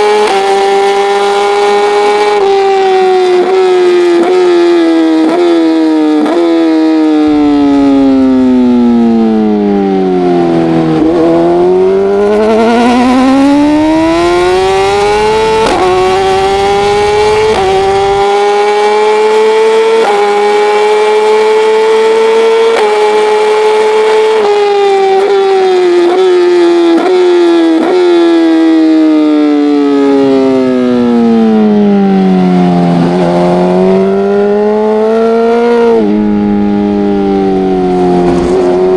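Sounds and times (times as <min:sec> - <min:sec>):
racing motorcycle engine: 0:00.0 - 0:38.9.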